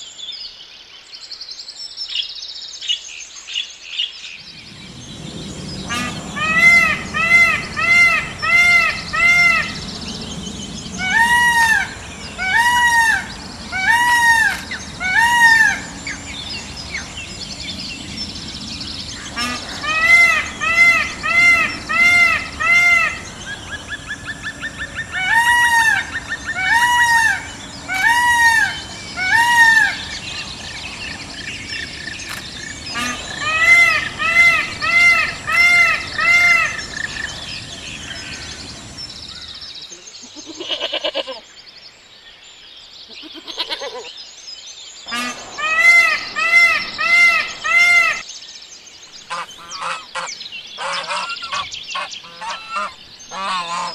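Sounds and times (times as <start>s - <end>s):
geese honking: 5.8s - 17.6s, 19.1s - 39.0s, 45.1s - 48.2s, 49.3s - 53.9s
geese rattling chatter: 5.8s - 17.6s, 19.1s - 39.0s, 45.1s - 48.2s, 49.3s - 53.9s.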